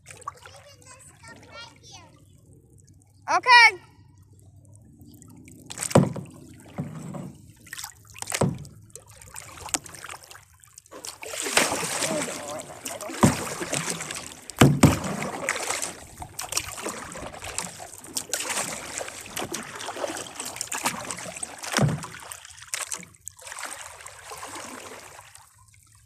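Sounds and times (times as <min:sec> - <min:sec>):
water splashing off paddle: 0:05.6 - 0:25.5
sharp knocks: 0:05.7 - 0:07.1, 0:14.6 - 0:15.2.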